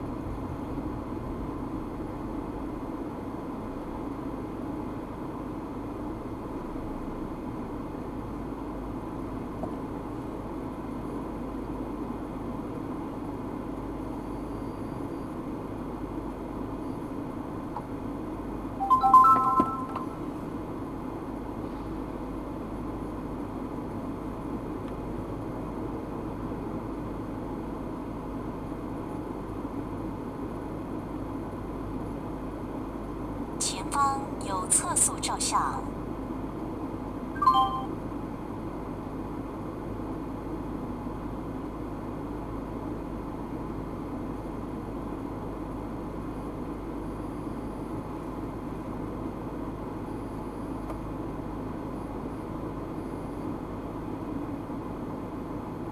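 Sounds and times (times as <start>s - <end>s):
short electronic beep: 18.8s - 20.3s, 37.4s - 37.9s.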